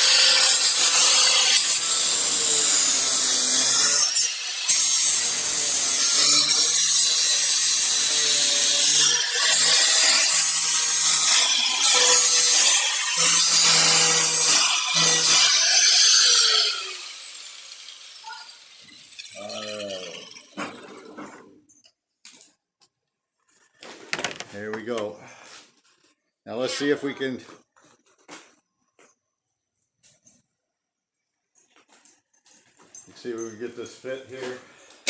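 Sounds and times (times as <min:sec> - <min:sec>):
power tool cutting sheet metal: 0:00.0 - 0:21.1.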